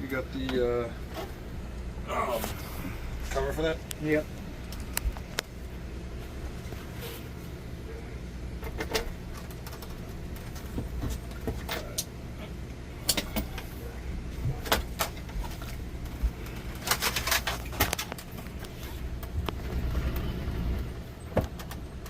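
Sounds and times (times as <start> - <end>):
steady low hum: 0.0 - 22.0
clicks and knocks of tools: 13.0 - 13.7.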